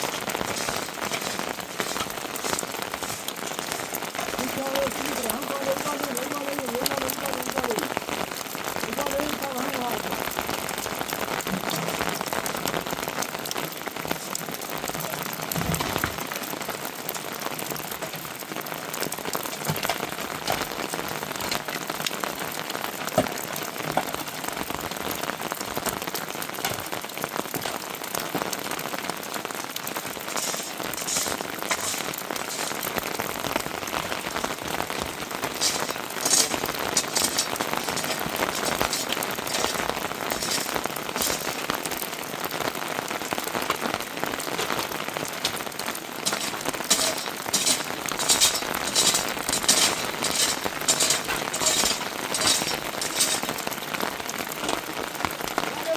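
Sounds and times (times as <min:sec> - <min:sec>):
heavy rain: 0:00.0 - 0:55.9.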